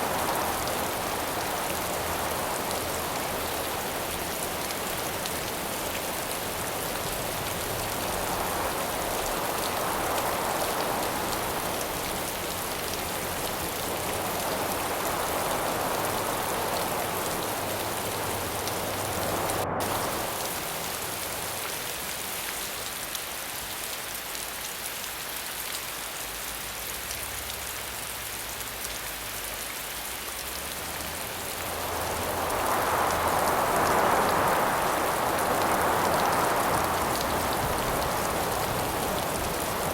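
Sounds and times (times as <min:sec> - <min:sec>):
wind gusting: 0:00.0 - 0:21.9, 0:31.0 - 0:39.9
dense rain hiss: 0:00.0 - 0:39.9.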